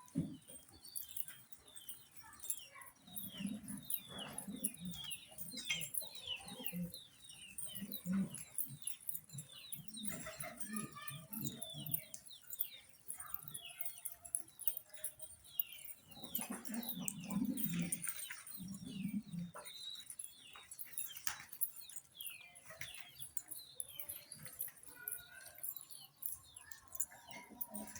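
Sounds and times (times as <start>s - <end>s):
pigeon cooing: 1.1s - 12.6s, 16.1s - 21.7s, 26.7s - 27.9s.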